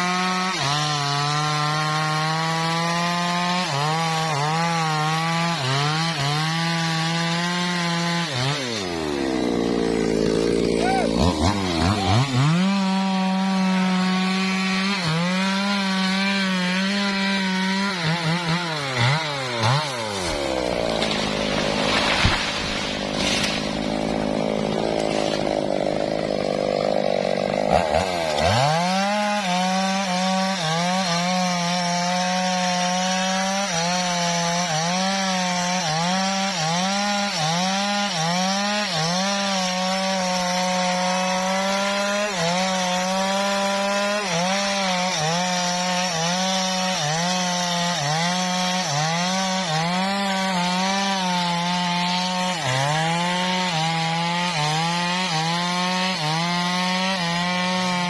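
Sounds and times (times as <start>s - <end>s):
chainsaw cutting wood: 0.0s - 58.0s
sharp crack: 20.2s - 24.0s.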